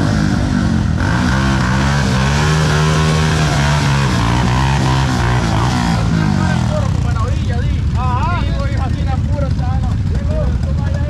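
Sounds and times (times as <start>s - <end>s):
rally engines revving hard: 0.0s - 8.0s.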